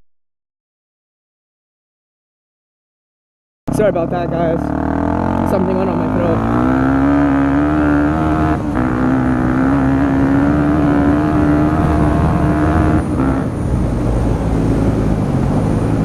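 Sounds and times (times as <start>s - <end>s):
dirt bike engine running: 3.7s - 13.4s.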